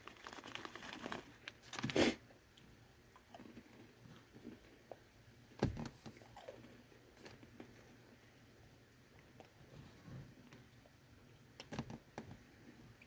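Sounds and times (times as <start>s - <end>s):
crunchy chewing: 3.2s - 5.0s.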